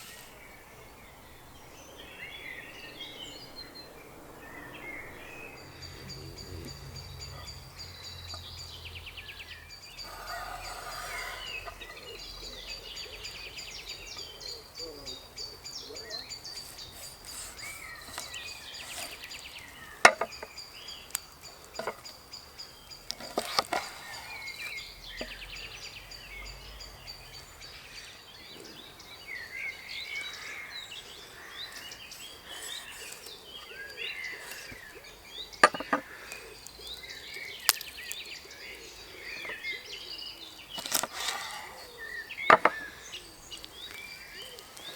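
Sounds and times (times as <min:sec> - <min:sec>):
songbirds chirping: 0:00.0 - 0:44.9
sharp knocks: 0:35.6 - 0:36.0.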